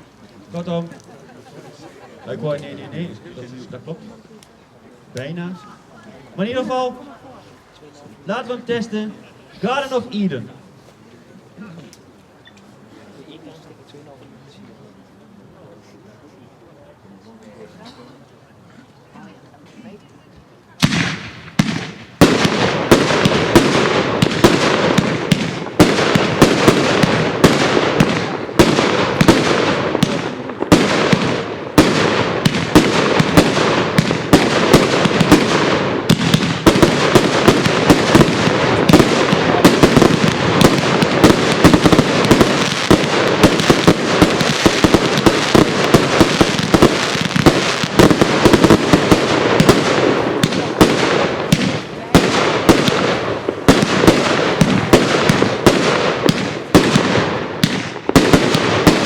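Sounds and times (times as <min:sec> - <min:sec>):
fireworks firing rapidly: 0:20.8 - 0:59.0.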